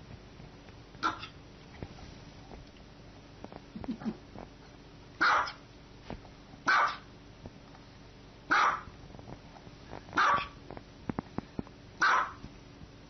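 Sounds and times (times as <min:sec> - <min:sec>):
small dog barking: 0:01.0 - 0:01.4, 0:05.2 - 0:05.6, 0:06.7 - 0:07.1, 0:08.5 - 0:08.9, 0:10.2 - 0:10.6, 0:12.0 - 0:12.4.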